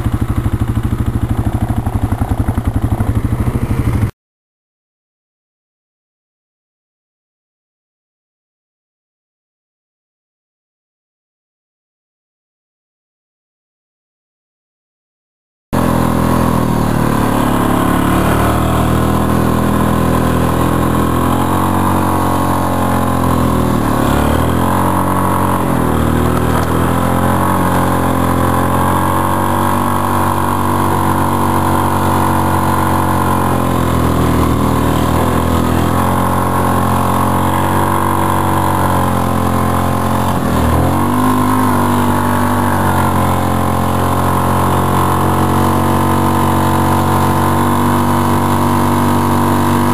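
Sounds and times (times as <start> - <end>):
engine running: 0.0 - 4.1, 15.8 - 49.9.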